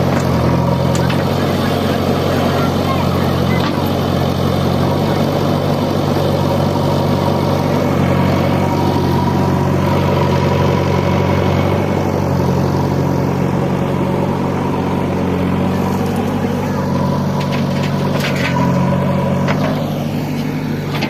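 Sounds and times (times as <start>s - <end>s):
heavy machine engine humming: 0.0s - 21.0s.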